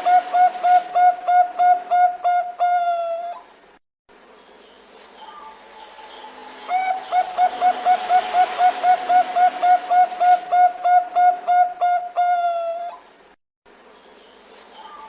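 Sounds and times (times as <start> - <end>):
dove cooing: 0.0 - 3.5, 6.7 - 13.0.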